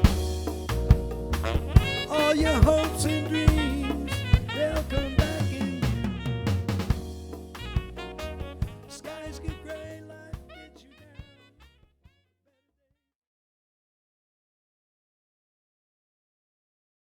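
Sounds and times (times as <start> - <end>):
drum kit: 0.0 - 10.6
smooth jazz band playing: 0.0 - 11.8.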